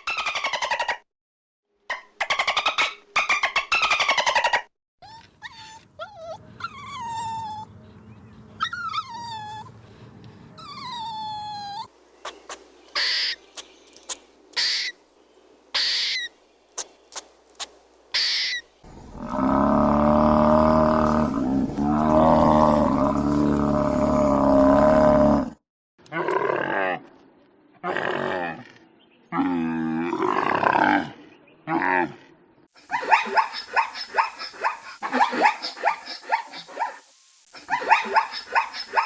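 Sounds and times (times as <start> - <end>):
short hissy calls: 14.6 - 15.0, 15.8 - 23.2
deep low animal call: 18.9 - 27.1.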